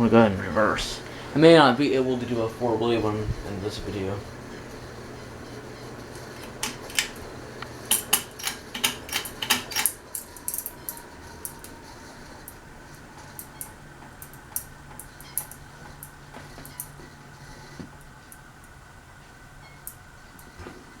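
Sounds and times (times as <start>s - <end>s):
low motor hum: 0.0s - 9.7s
ceiling fan clicks and rattles: 0.0s - 21.0s.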